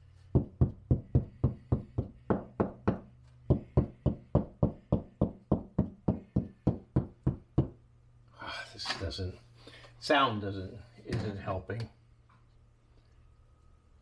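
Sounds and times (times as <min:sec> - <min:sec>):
rapid knocking on a wall: 0:00.3 - 0:07.8.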